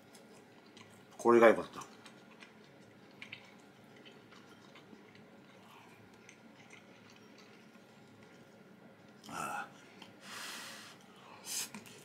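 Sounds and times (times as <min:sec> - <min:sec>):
faint chewing mouth clicks: 0:00.0 - 0:08.5.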